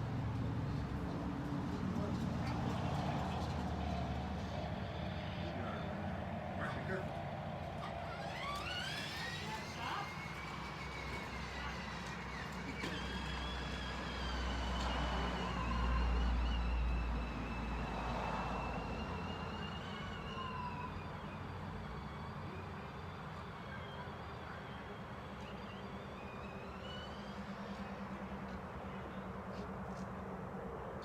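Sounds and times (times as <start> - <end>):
tyres rumbling on ground: 0.0 - 30.6
electric motor whining: 7.6 - 24.8.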